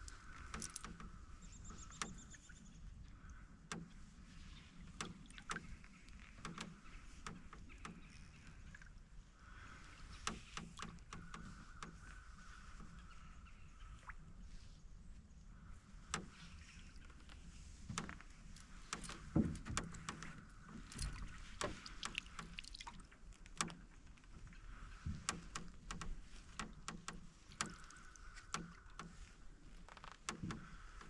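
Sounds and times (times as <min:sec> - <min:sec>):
canoe creaking: 0:00.0 - 0:14.3, 0:15.6 - 0:31.0
paddle knocking against hull: 0:17.7 - 0:23.0, 0:24.9 - 0:29.4, 0:30.3 - 0:31.0.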